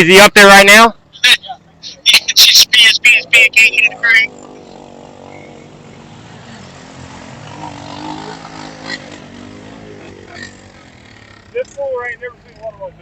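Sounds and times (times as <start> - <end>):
four-wheeler engines revving: 1.0 - 13.0.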